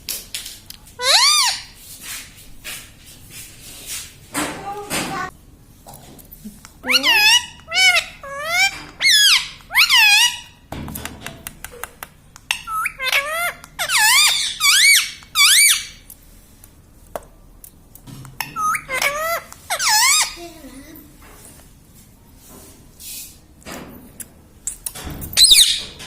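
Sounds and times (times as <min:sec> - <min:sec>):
parrot squeaky calls: 0:01.0 - 0:01.8, 0:06.8 - 0:10.6, 0:12.5 - 0:16.0, 0:18.4 - 0:20.4, 0:25.4 - 0:25.9.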